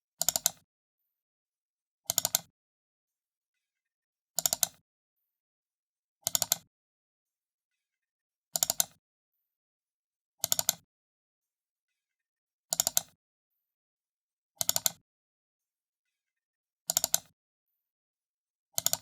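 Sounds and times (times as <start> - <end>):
computer mouse double clicks: 16.9 - 17.3.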